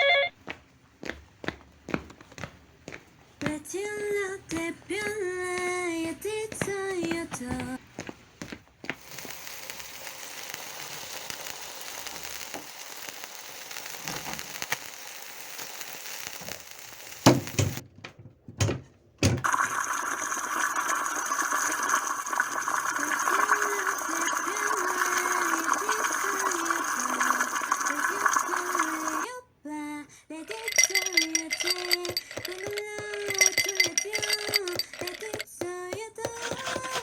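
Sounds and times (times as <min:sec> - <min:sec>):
food frying in a pan: 0:09.0 - 0:17.8, 0:19.4 - 0:29.3
water running from a tap: 0:09.0 - 0:17.8, 0:19.4 - 0:29.3.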